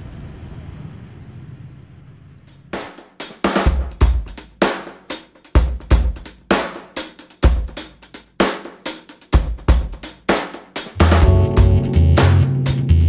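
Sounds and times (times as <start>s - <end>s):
snare drum hits: 2.8s - 5.1s
kick drum thumps: 3.7s - 4.4s, 5.6s - 6.2s, 9.3s - 10.0s.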